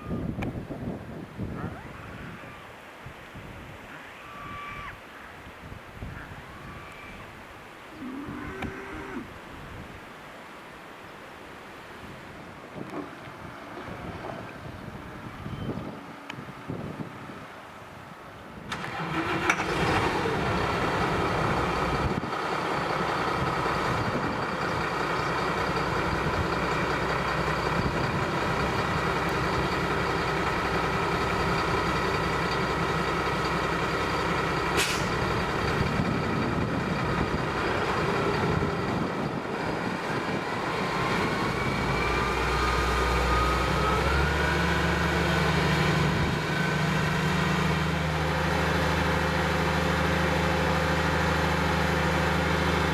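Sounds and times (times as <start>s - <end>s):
diesel engine running: 18.7s - 52.9s
sharp click: 34.8s - 35.2s.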